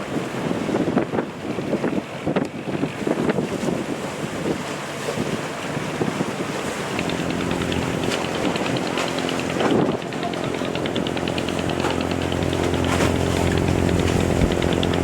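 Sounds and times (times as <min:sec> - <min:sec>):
sea waves: 0:00.0 - 0:15.0
wind buffeting microphone: 0:00.0 - 0:15.0
machine hum with rapid ticking: 0:06.9 - 0:15.0.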